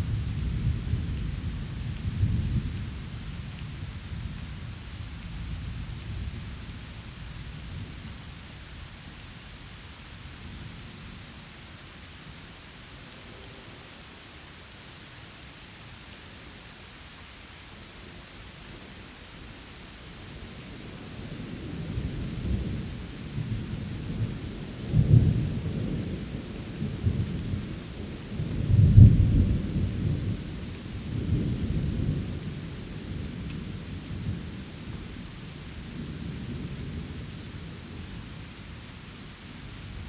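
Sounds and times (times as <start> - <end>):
steady rain: 0.0 - 40.0
rolling thunder: 28.4 - 35.3.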